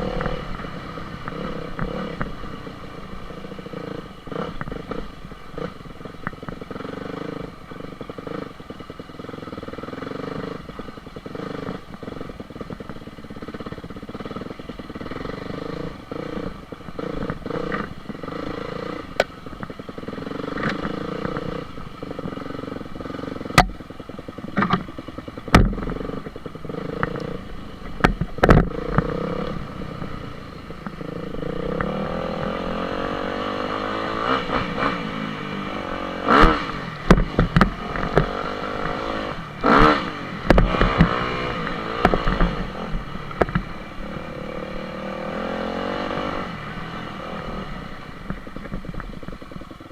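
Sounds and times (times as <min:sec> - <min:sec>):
dirt bike engine revving: 0:00.0 - 0:49.9
sharp knocks: 0:25.5 - 0:26.0.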